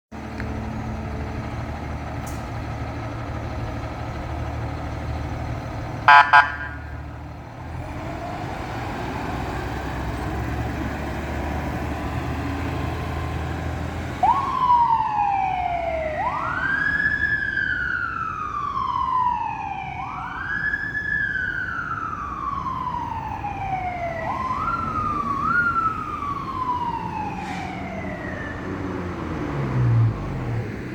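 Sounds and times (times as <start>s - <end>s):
fire engine rumbling: 0.1s - 30.9s
siren wailing: 6.1s - 7.2s, 14.2s - 29.4s.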